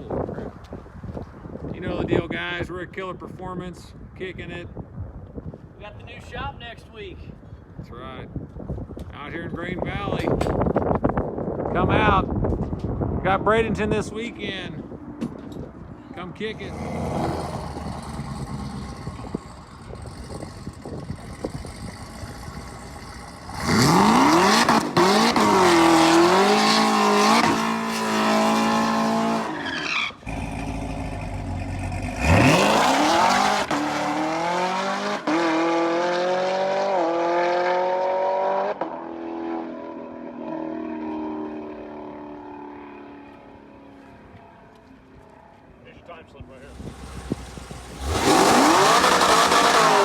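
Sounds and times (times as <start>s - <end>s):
low engine rumble: 16.4s - 23.6s, 46.5s - 49.5s
race car engine revving through upshifts: 16.4s - 41.4s, 46.7s - 50.0s.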